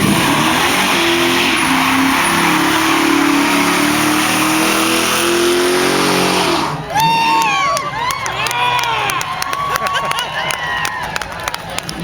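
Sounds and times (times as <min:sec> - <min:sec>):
car engine at high revs: 0:00.0 - 0:07.0
tyres spinning and squealing: 0:00.0 - 0:08.0.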